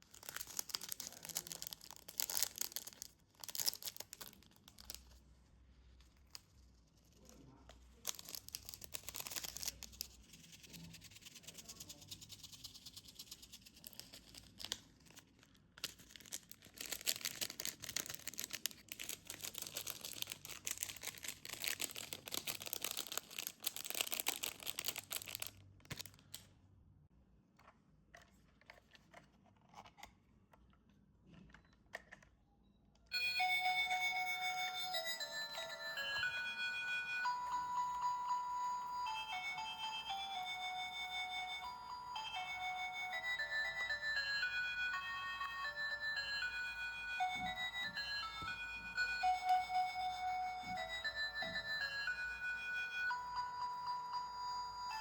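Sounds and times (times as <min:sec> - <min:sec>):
packaging tearing and crinkling: 0:00.0 - 0:05.2, 0:08.0 - 0:10.2, 0:13.8 - 0:26.3.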